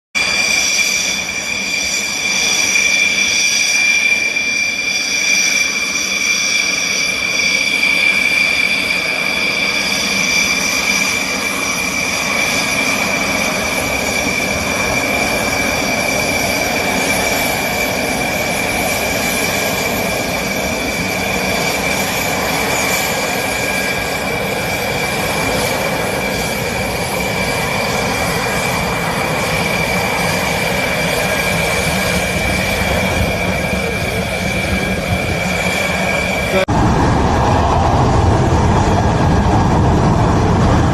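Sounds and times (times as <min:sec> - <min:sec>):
jet engines whining: 0:00.2 - 0:40.9
rushing noise: 0:00.2 - 0:40.9.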